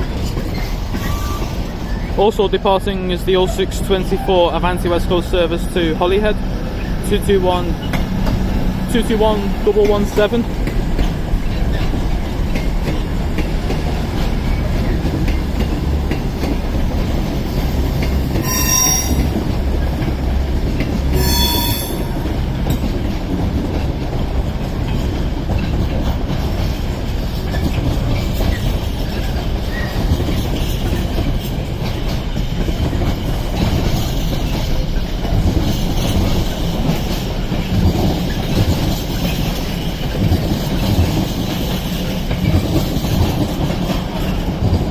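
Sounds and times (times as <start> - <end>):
trains rumbling on rails: 0.0 - 44.9
high wheel squeals: 0.5 - 2.2, 18.4 - 19.4, 21.1 - 22.4.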